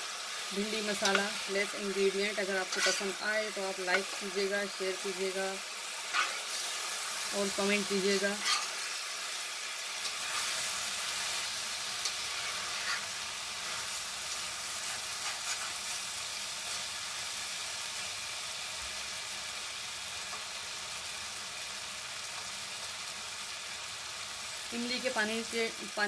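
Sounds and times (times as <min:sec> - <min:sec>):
vegetables sizzling in oil: 0:00.0 - 0:26.0
spatula scraping pan: 0:00.7 - 0:04.5, 0:06.0 - 0:08.9, 0:12.0 - 0:14.0, 0:14.7 - 0:16.0.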